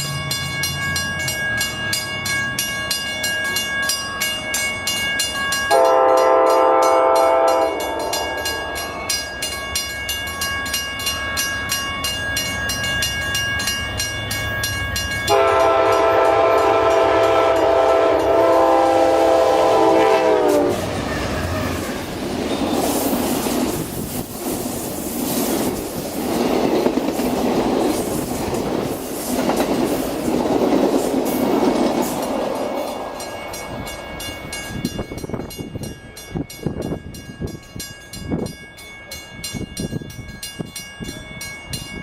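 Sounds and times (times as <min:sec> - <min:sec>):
steady high ringing tones: 0:00.0 - 0:18.9, 0:32.0 - 0:42.0
train horn blasts: 0:05.7 - 0:08.9, 0:15.3 - 0:22.1.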